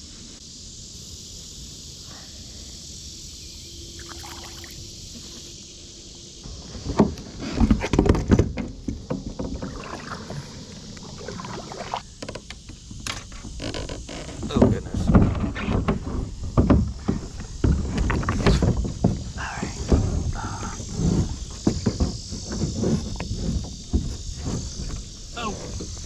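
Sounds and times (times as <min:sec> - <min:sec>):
steady outdoor hiss: 0:00.0 - 0:26.0
water splashing: 0:03.9 - 0:05.4, 0:09.5 - 0:12.0.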